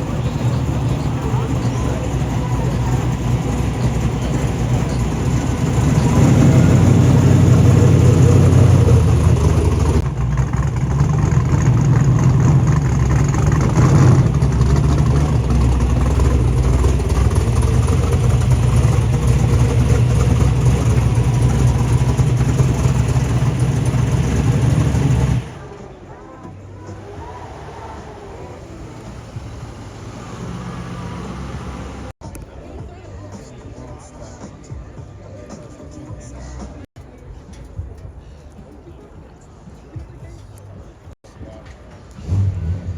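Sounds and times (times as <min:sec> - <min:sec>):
car engine rumbling: 0:00.0 - 0:32.3.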